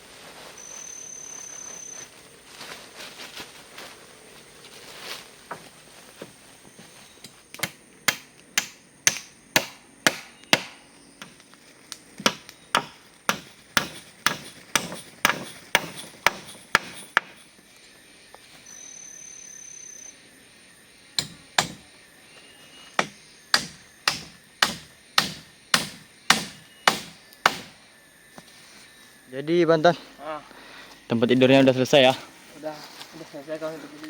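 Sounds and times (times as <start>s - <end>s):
tool striking wood: 7.6s - 11.4s, 12.2s - 17.5s, 21.2s - 21.8s, 23.0s - 27.8s.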